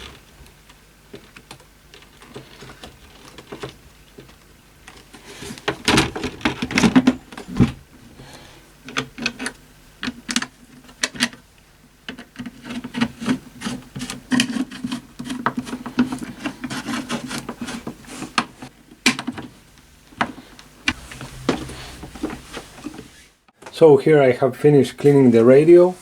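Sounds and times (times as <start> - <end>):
rubbing and scraping: 12.6 - 18.7, 20.2 - 23.5.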